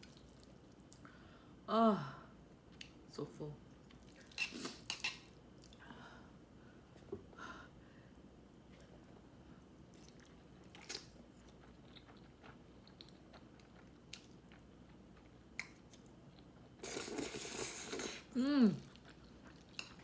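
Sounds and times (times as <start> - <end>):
quiet chewing with mouth clicks: 0.0 - 1.1, 2.7 - 3.0, 3.7 - 5.9, 8.7 - 20.0.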